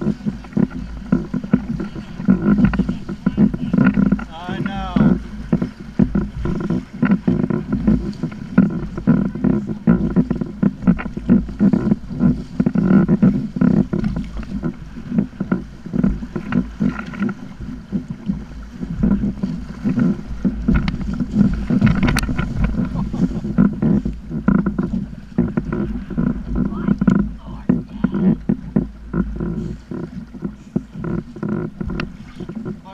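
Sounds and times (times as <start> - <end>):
water lapping against kayak hull: 0.0 - 32.9
wind buffeting microphone: 0.0 - 32.9.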